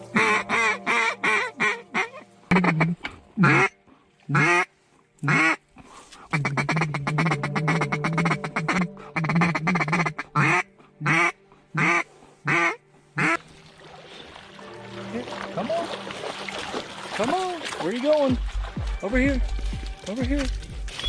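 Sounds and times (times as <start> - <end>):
duck quacking: 0.1 - 5.6, 6.3 - 13.4.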